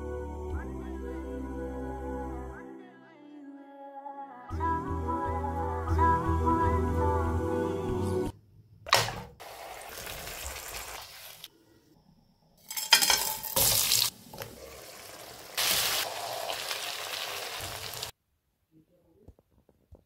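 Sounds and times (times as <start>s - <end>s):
food sizzling in a pan: 9.4s - 11.5s, 12.7s - 18.1s.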